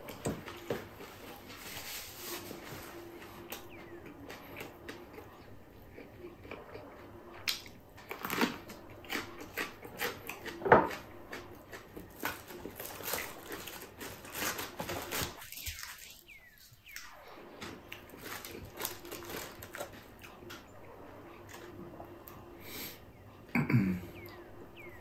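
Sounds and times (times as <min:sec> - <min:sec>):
person chewing food: 0:02.5 - 0:17.0, 0:17.6 - 0:20.6.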